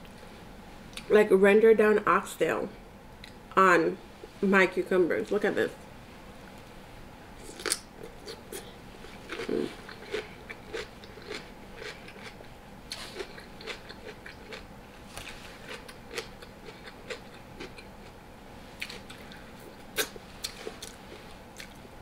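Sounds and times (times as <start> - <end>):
person chewing crunchy cucumber: 7.4 - 18.2, 18.8 - 21.8.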